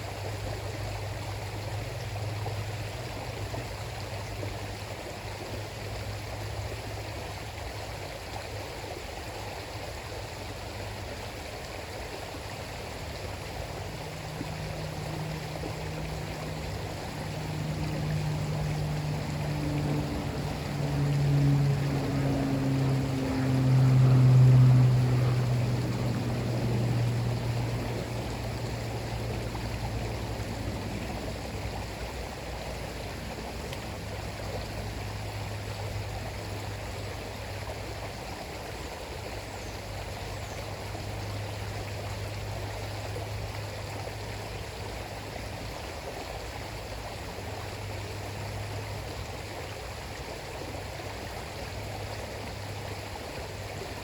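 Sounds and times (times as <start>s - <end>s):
river water flowing: 0.0s - 54.0s
low motor hum: 11.8s - 54.0s.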